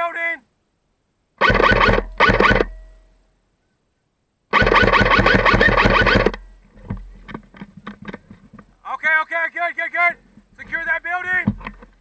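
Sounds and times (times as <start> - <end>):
airsoft gun full-auto bursts: 1.4 - 2.8, 4.5 - 6.4.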